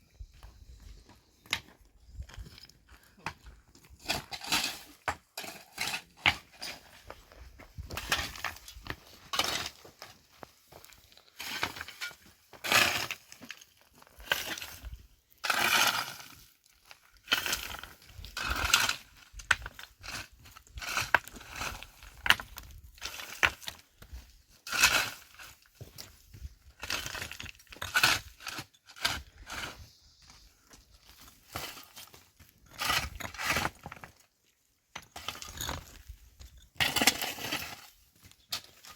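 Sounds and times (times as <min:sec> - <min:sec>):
hard objects clinking and scraping: 0:31.1 - 0:34.2, 0:34.9 - 0:38.9.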